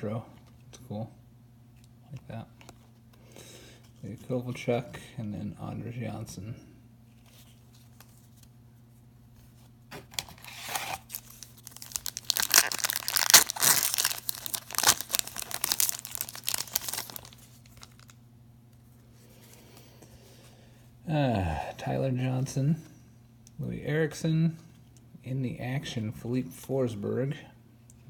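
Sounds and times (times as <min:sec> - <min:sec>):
wrapper tearing and crinkling: 0:10.1 - 0:18.2.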